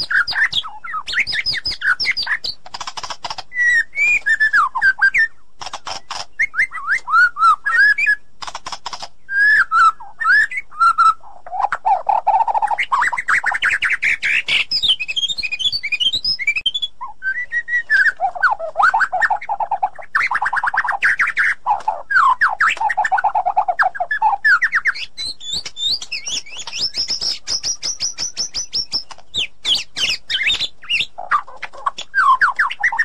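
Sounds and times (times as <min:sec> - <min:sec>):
bird singing varied song: 0:00.0 - 0:33.0.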